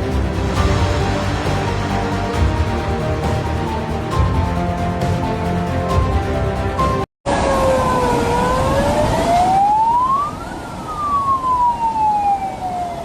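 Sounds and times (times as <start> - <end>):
steady rushing background: 0.0 - 7.1
emergency vehicle siren wailing: 7.3 - 13.0.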